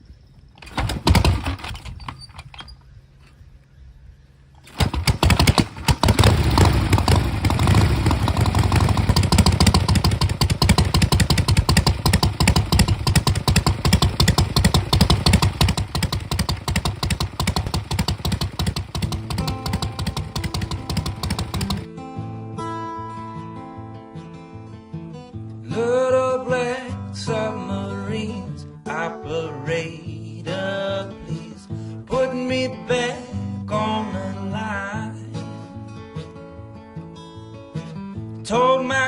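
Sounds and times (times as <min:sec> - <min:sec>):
motorcycle engine starting and revving: 0:00.6 - 0:03.4, 0:04.6 - 0:21.9.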